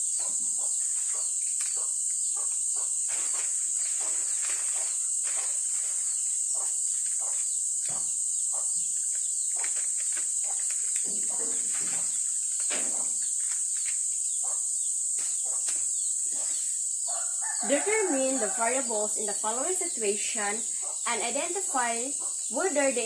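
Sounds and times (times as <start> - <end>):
shrill insect chorus: 0.0 - 23.0
faint rustles and knocks: 0.2 - 14.5.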